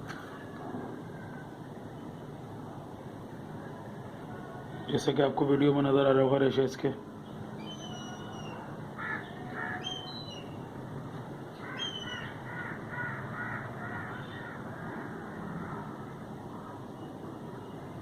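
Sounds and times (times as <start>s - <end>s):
high whistled bird chirps: 7.6s - 8.6s
crow cawing: 8.0s - 10.2s, 11.6s - 16.0s.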